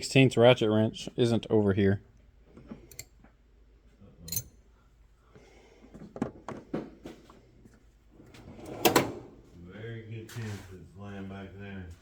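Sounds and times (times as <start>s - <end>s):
hand tools clicking and knocking: 4.3s - 4.5s.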